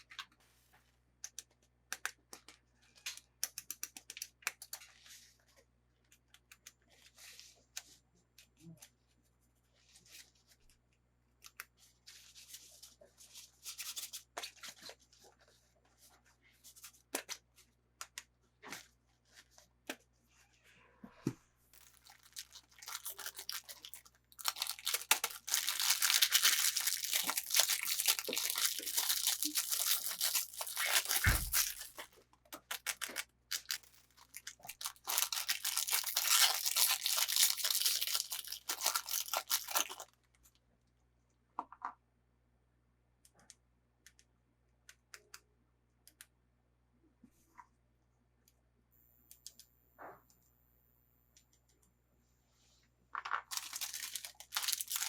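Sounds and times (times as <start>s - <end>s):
packaging rustling and tearing: 21.8s - 40.1s, 53.5s - 55.0s.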